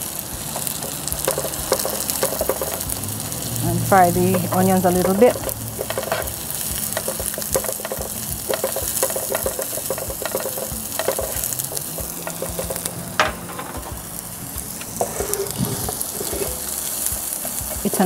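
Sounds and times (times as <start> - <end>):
vegetables sizzling in oil: 0.0 - 18.0
spatula scraping pan: 0.5 - 2.9, 3.8 - 14.0, 14.7 - 18.0.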